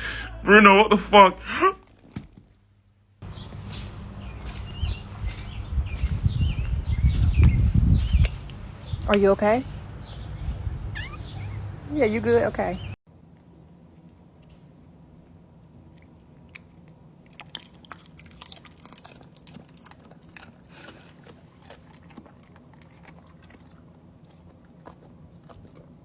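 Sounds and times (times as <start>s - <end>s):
animal chewing crunchy food: 14.4s - 26.0s.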